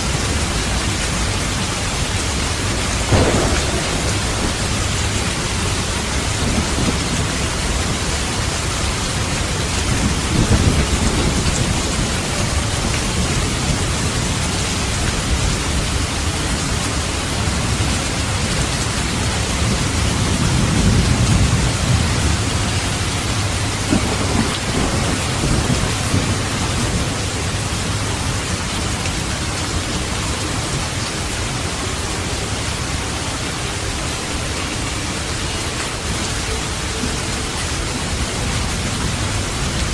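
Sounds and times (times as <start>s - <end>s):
steady rain: 0.0s - 39.9s
low rolling thunder: 0.1s - 30.8s.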